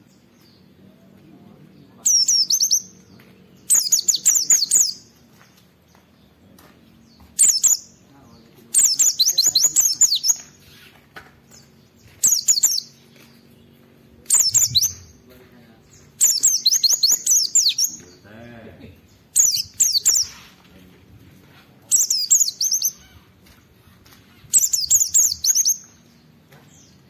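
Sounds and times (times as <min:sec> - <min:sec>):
bird singing high chirping notes: 0:01.8 - 0:05.2, 0:07.0 - 0:10.9, 0:11.5 - 0:18.2, 0:19.0 - 0:20.6, 0:21.9 - 0:23.3, 0:24.3 - 0:27.0.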